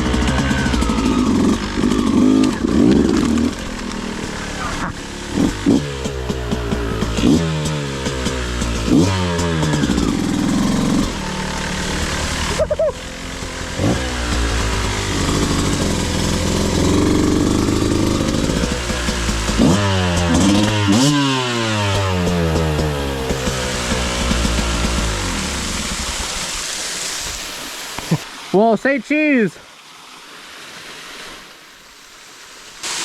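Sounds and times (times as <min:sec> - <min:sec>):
dirt bike engine revving: 0:00.0 - 0:26.4.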